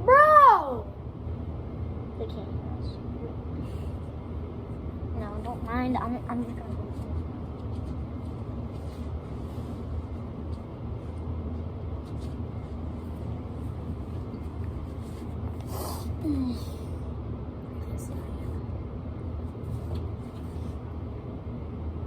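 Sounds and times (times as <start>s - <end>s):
low background rumble: 0.0s - 22.0s
rustling noise: 6.3s - 15.7s, 19.4s - 20.9s.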